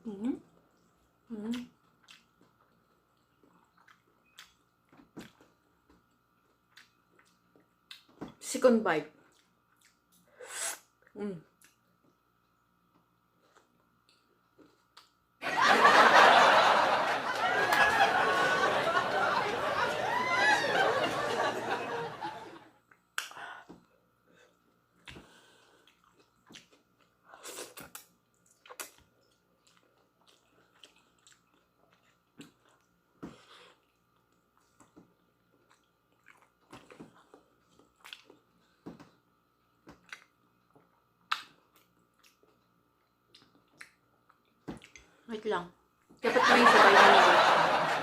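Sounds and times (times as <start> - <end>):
person chewing food: 0.6 - 8.3, 9.2 - 10.3, 11.6 - 15.2, 22.8 - 45.2.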